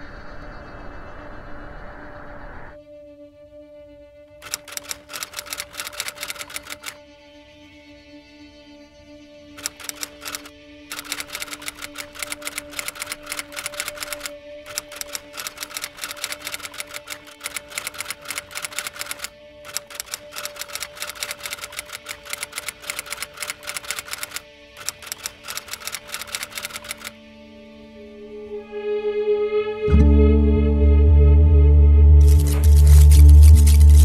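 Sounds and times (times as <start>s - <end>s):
rapid mechanical clicking: 4.4s - 7.0s, 9.6s - 27.1s, 32.2s - 34.0s
steady low drone: 27.1s - 34.0s.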